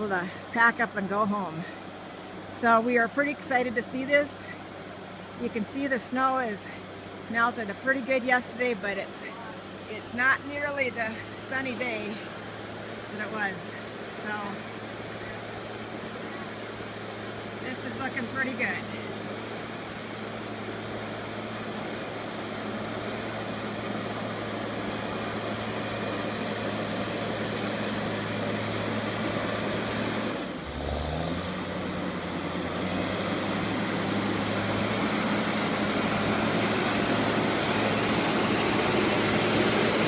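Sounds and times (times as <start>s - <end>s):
snow clearing vehicle engine: 0.0s - 40.0s.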